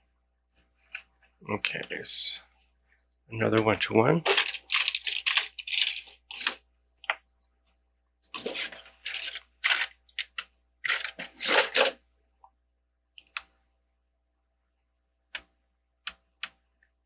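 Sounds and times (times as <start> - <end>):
plastic pieces clattering: 4.2 - 6.6, 8.4 - 12.0.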